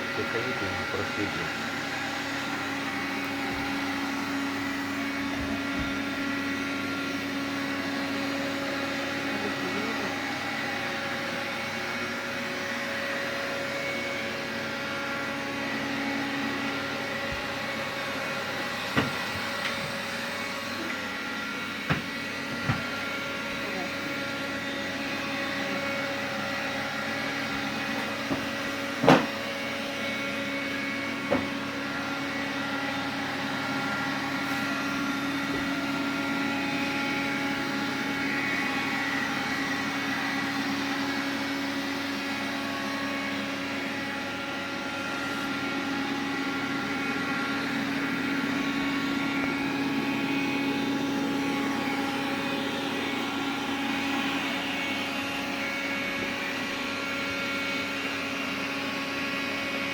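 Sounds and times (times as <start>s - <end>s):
vacuum cleaner humming: 0.0s - 59.9s.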